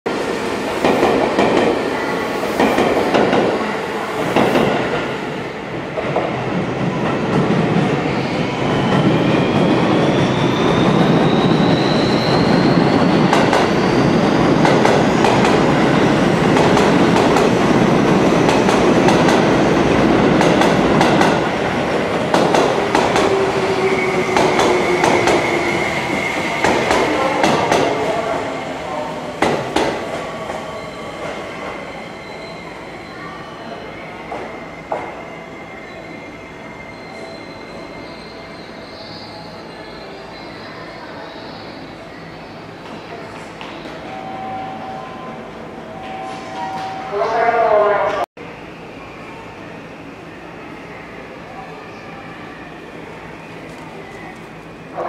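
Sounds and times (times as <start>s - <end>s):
electric train rumbling: 0.1s - 51.8s.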